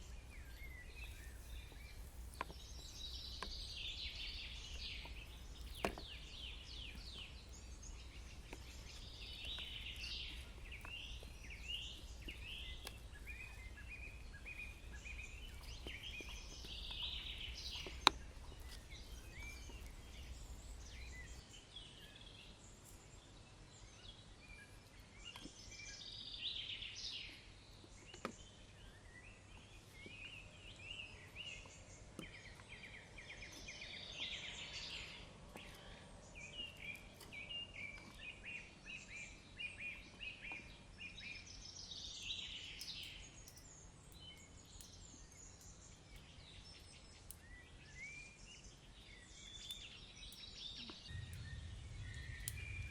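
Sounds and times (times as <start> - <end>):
faint ticks: 0.0 - 21.4, 42.7 - 47.6, 49.0 - 52.9
woodland birds chirping: 0.0 - 52.9.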